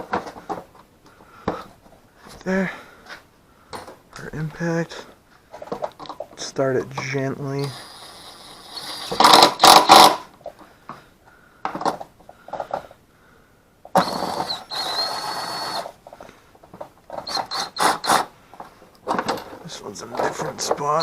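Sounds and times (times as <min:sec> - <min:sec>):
cordless impact tool running: 0:07.7 - 0:10.2, 0:14.0 - 0:15.9, 0:17.2 - 0:18.3.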